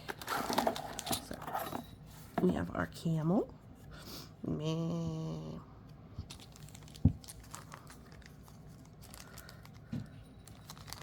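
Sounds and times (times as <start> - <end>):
plastic packaging crinkling: 6.3 - 11.0.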